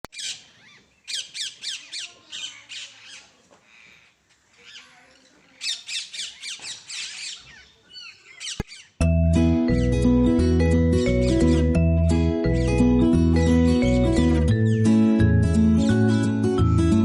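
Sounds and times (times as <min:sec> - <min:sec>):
bird squawking: 0:00.1 - 0:09.0, 0:11.0 - 0:11.8, 0:14.6 - 0:14.9.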